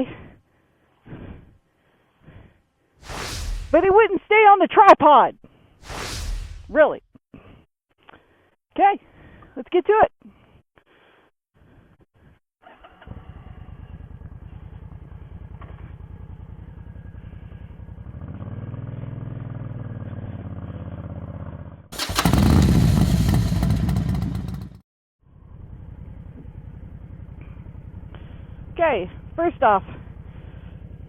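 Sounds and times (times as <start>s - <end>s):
loud rushing noise: 3.0s - 3.9s, 5.8s - 6.8s
motorcycle engine idling: 13.2s - 21.3s, 22.0s - 31.0s.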